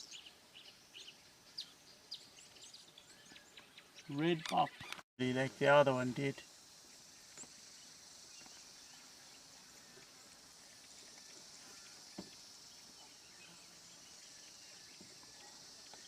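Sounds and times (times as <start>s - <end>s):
high-pitched insect chorus: 4.2s - 16.0s.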